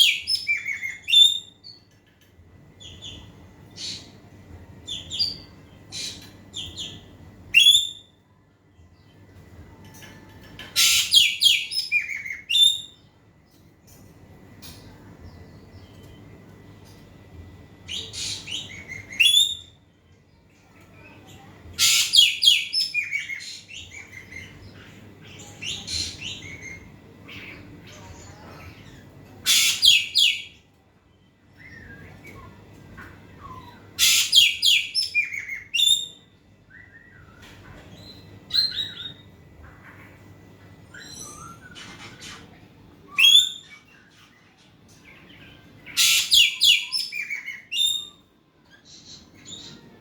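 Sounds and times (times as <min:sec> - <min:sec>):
loud bird calls: 0:10.7 - 0:13.0, 0:21.7 - 0:27.9, 0:29.4 - 0:30.5, 0:33.4 - 0:36.2, 0:45.6 - 0:48.2.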